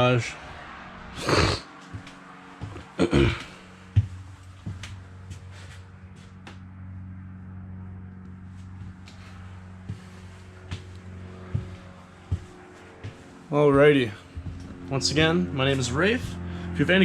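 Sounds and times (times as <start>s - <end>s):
steady low hum: 0.0s - 17.0s
loud sniff: 1.2s - 1.8s.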